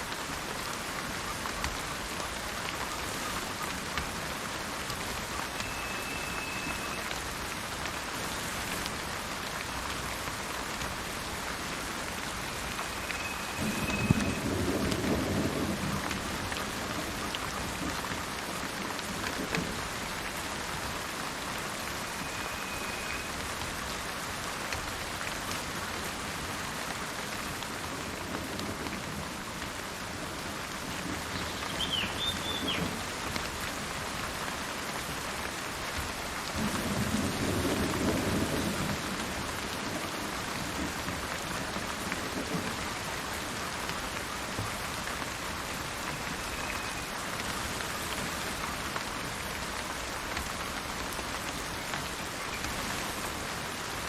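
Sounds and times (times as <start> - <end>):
steady rain falling: 0.0 - 54.0
thunder rumbling: 13.4 - 17.2
bird chirping: 31.4 - 32.8.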